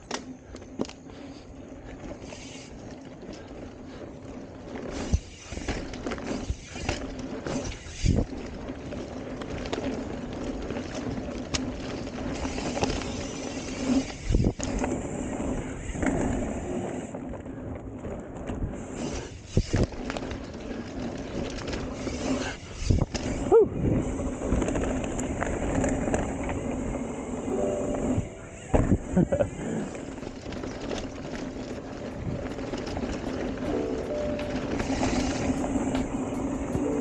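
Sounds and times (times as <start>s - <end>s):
bike tyres rolling on dirt: 0.0s - 37.0s
wind noise: 3.9s - 37.0s.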